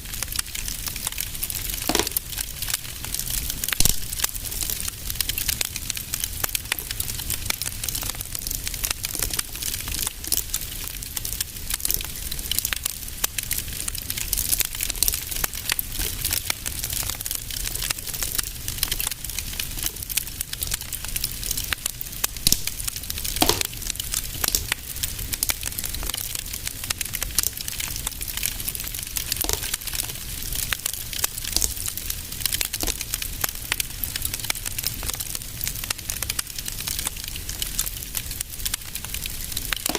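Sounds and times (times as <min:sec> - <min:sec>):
fireplace fire crackling: 0:00.0 - 0:39.9
low rumble of fire: 0:00.0 - 0:39.9
loud pop of fire: 0:01.7 - 0:02.7, 0:03.6 - 0:04.4, 0:22.3 - 0:28.3, 0:29.2 - 0:33.2.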